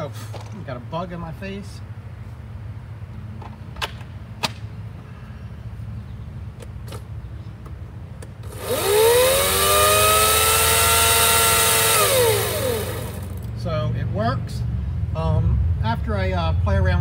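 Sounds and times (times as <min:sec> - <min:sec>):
electric chainsaw motor whining: 0:08.4 - 0:13.5.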